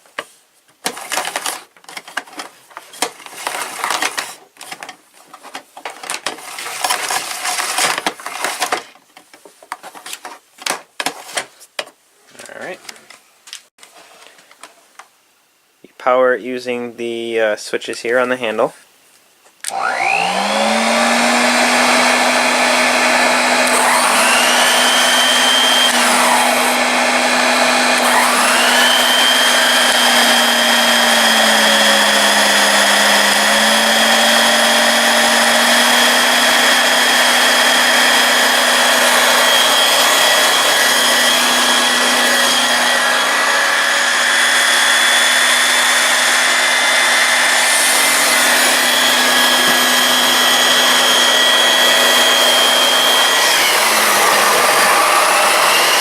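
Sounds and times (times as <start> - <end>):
vacuum cleaner motor whining: 19.7 - 56.0.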